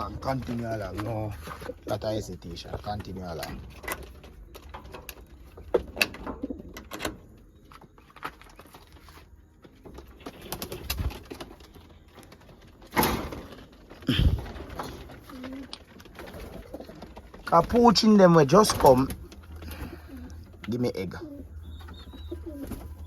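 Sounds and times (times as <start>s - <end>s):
pigeons cooing: 5.6s - 7.1s, 14.1s - 23.0s.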